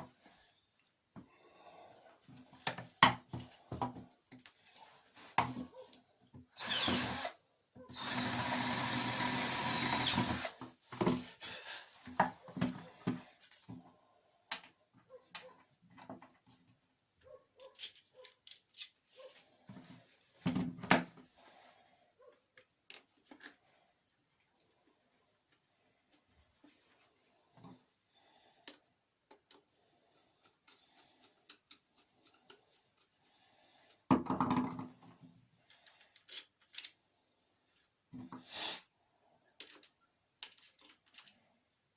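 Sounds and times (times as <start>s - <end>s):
power drill drilling metal: 6.6s - 10.6s
parts clicking and knocking: 17.6s - 19.0s, 34.1s - 37.0s, 39.5s - 41.4s.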